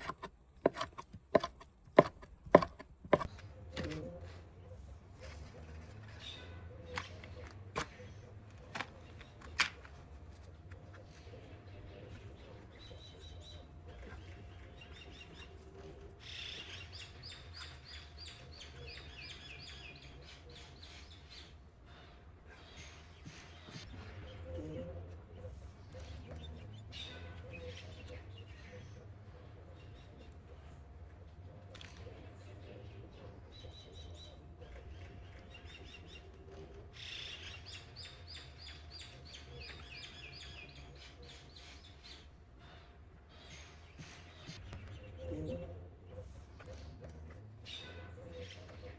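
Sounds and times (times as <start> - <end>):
bird chirping: 0.0 - 48.9
low steady hum: 0.0 - 48.9.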